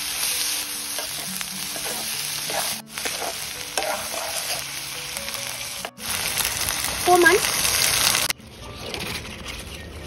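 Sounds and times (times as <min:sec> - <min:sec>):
food sizzling in oil in a wok: 0:00.0 - 0:08.4
metal ladle scraping a wok: 0:00.9 - 0:05.0.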